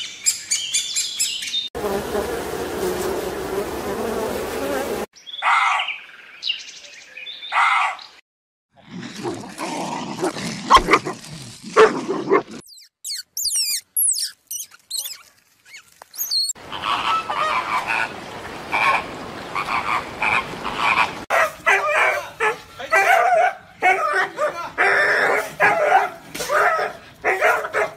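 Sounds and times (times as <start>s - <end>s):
high gliding chirps: 12.7s - 16.6s
flamingos honking and chattering: 16.6s - 21.2s.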